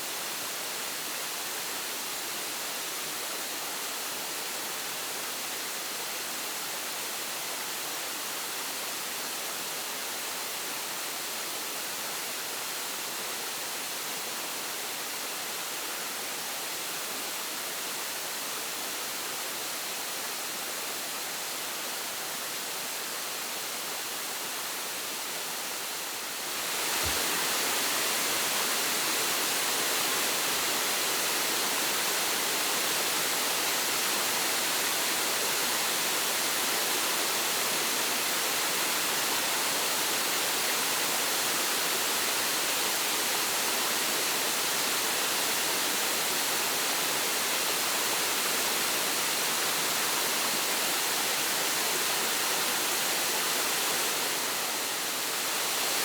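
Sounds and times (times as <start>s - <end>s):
waterfall rushing: 25.6s - 56.0s.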